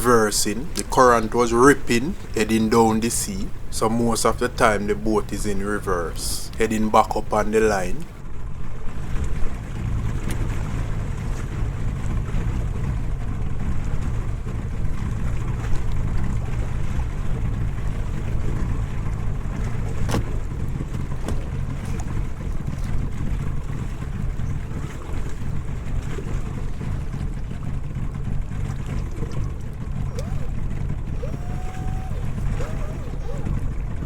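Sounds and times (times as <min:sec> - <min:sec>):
boat engine running: 0:00.0 - 0:34.0
water noise: 0:00.0 - 0:34.0
wind noise: 0:00.0 - 0:34.0.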